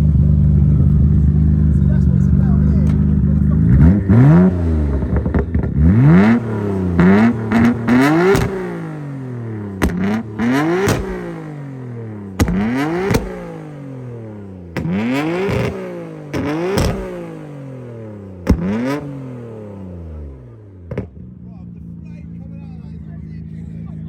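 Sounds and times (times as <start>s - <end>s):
car engine revving: 0.0s - 24.0s
exhaust bangs: 0.0s - 24.0s.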